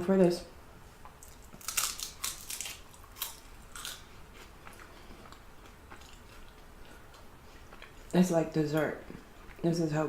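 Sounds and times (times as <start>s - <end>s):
person chewing food: 0.9s - 8.2s
person biting crunchy food: 1.2s - 6.5s.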